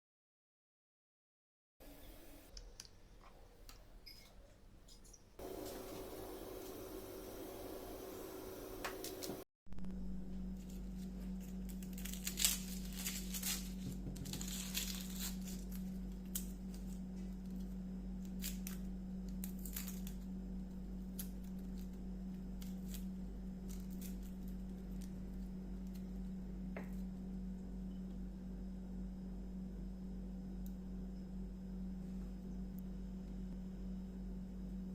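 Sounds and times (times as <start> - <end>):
steady low hum: 4.7 - 34.9
rustling: 10.6 - 17.5.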